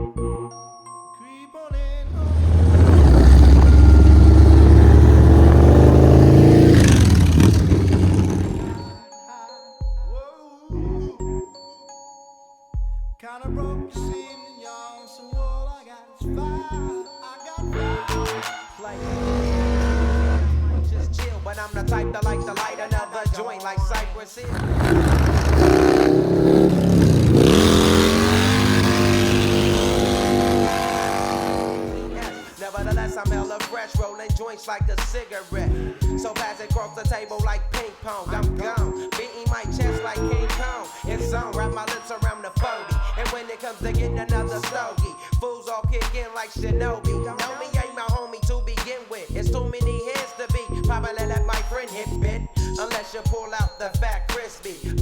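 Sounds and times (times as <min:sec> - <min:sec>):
motorcycle engine accelerating: 0:02.1 - 0:09.0, 0:19.1 - 0:21.6, 0:24.5 - 0:32.3.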